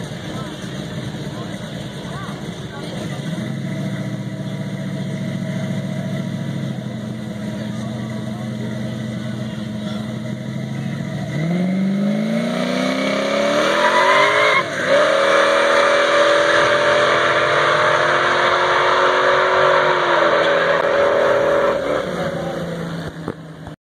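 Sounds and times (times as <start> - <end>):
car engine revving: 0.0 - 23.8.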